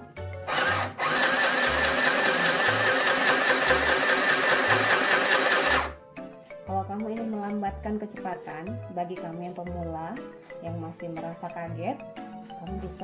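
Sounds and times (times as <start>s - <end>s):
sewing machine whirring: 0.4s - 6.0s.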